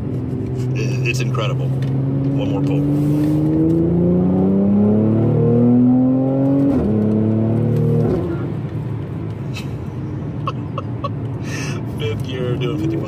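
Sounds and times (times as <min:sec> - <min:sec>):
car engine revving under full throttle: 0:00.0 - 0:09.4.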